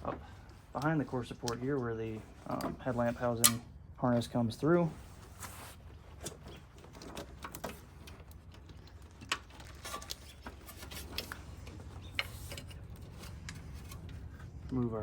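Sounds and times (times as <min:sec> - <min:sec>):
cable clicking and rattling: 0:06.1 - 0:14.8.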